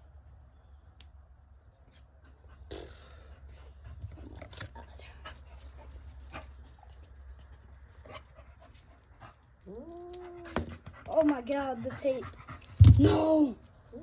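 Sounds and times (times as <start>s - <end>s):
dog panting and whimpering: 10.4s - 13.0s.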